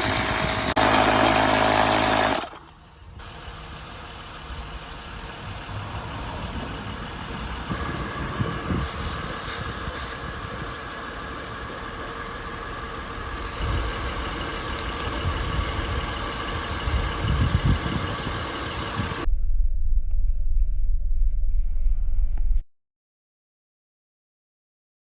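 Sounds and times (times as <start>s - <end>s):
air compressor running: 0.0s - 19.3s
loud low rumble: 4.4s - 22.6s.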